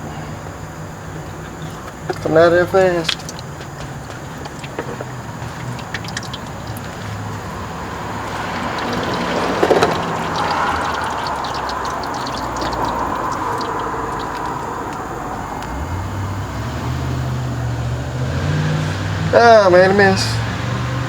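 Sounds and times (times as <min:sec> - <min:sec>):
liquid gushing and splattering: 0:01.6 - 0:15.2.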